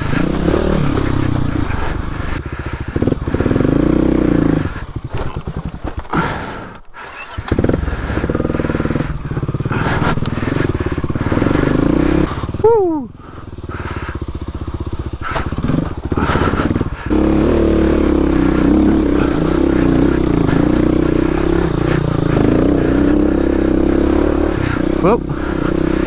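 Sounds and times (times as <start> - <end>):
motorcycle engine at low revs: 0.0 - 26.0.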